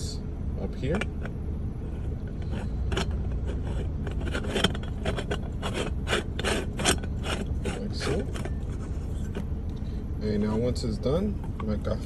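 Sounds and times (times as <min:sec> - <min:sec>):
steady low rumble: 0:00.0 - 0:12.0
metal threads scraping clicks: 0:00.9 - 0:09.5.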